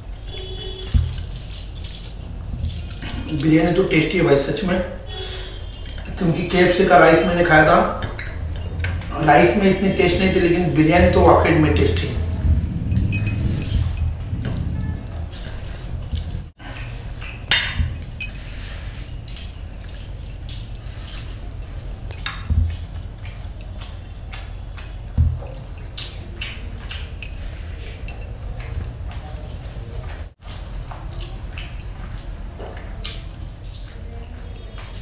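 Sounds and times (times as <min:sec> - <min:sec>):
wet chewing and lip-smacking: 0:16.7 - 0:35.0.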